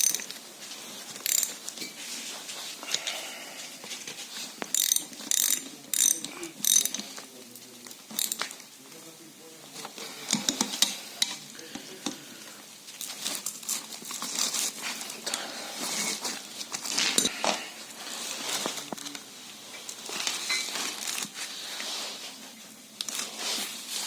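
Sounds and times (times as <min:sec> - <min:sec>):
rustling and crinkling handling: 0:00.0 - 0:24.0.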